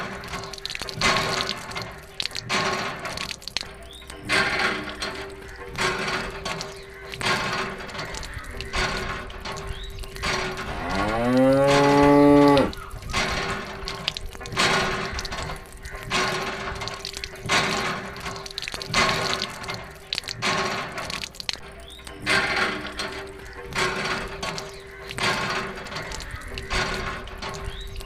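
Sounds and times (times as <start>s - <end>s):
long low moo-like call: 10.7s - 12.8s.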